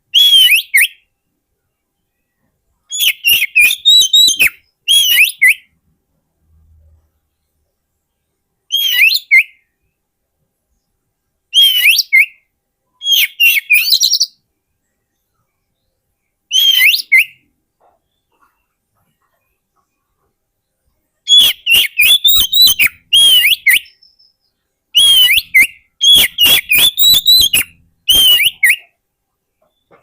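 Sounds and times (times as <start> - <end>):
bird singing whistled phrases: 0.1 - 1.1, 2.9 - 5.7, 8.7 - 9.6, 11.5 - 12.4, 13.0 - 14.4, 16.5 - 17.5, 21.3 - 29.0.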